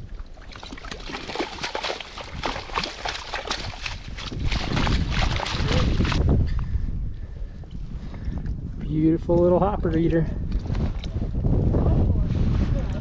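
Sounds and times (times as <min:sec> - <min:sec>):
fish splashing in water: 0:00.1 - 0:06.2.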